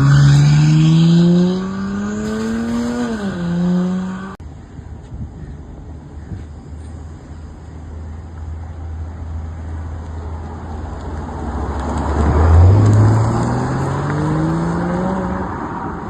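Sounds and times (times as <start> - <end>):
car engine pulling under load: 0.0 - 4.4.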